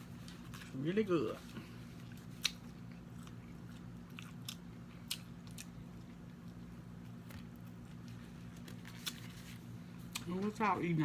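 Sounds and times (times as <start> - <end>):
steady low hum: 0.0 - 11.0
wet chewing: 2.0 - 9.5.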